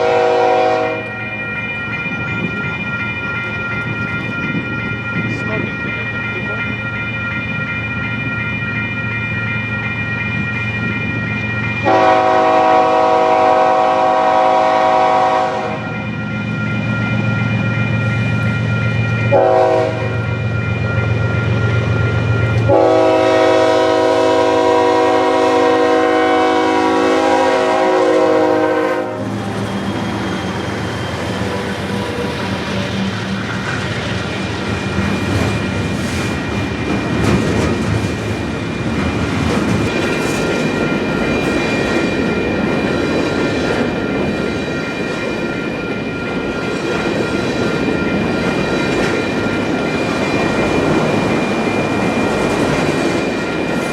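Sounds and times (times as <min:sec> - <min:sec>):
locomotive air horn blasts: 0:00.0 - 0:01.1, 0:11.8 - 0:15.8, 0:19.3 - 0:20.1, 0:22.7 - 0:29.4.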